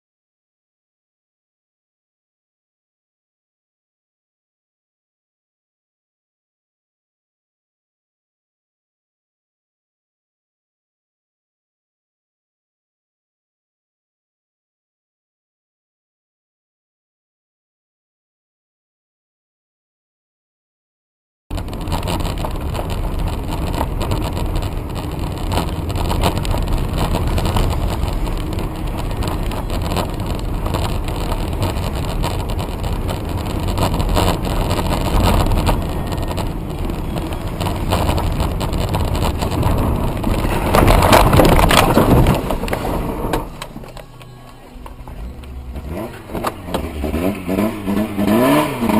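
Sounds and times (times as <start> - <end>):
road and engine rumble: 21.5 - 48.9.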